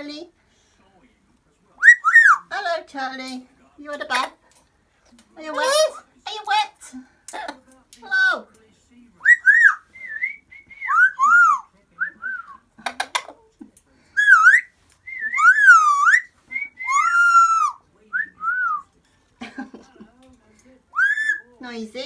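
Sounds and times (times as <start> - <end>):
parrot whistling: 1.8 - 2.4, 9.2 - 13.1, 14.2 - 17.8, 21.0 - 21.5.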